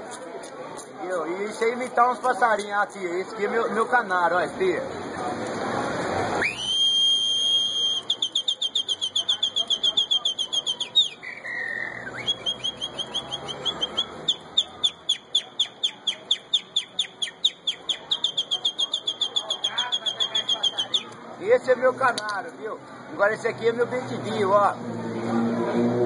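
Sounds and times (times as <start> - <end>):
man whistling birdsong: 6.4 - 14.4.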